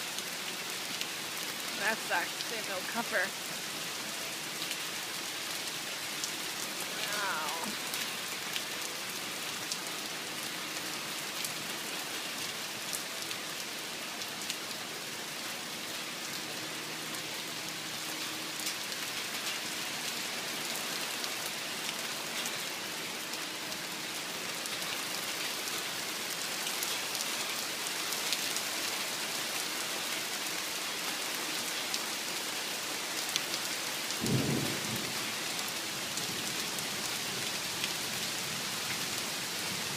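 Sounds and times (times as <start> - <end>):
raindrops splatting: 0.0 - 15.6, 33.2 - 39.9
heavy rain on a lake: 0.0 - 39.9.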